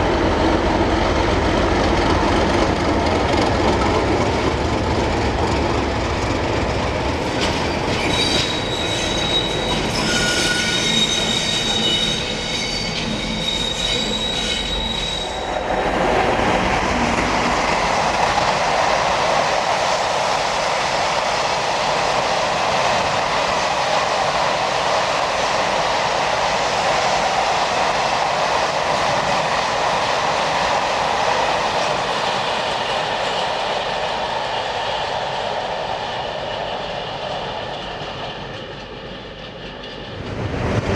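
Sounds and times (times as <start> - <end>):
train rumble: 0.0 - 40.9
high-pitched wheel squeal: 7.7 - 15.6.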